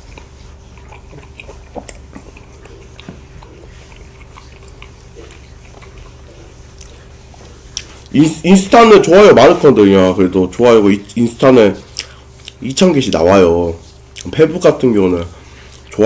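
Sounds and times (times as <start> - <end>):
chewing and swallowing: 0.0 - 8.2, 11.8 - 13.3, 14.0 - 14.4, 15.4 - 16.0
faint steady hum: 0.0 - 16.0.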